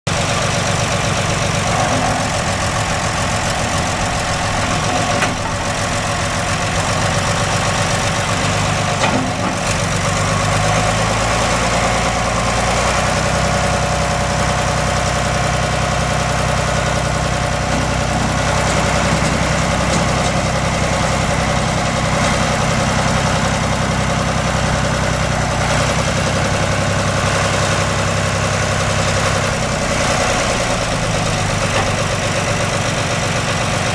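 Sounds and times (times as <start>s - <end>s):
tractor diesel engine idling: 0.1s - 33.9s.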